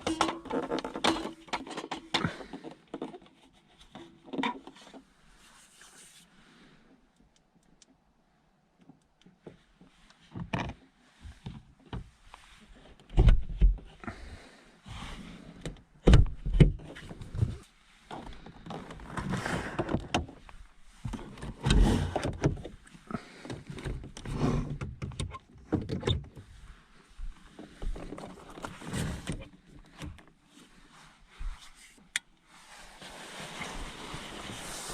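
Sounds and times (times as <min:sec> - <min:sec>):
rustling and scraping: 0:00.0 - 0:06.5, 0:16.8 - 0:34.9
knocks and thumps in a car: 0:13.1 - 0:13.9, 0:16.0 - 0:17.6.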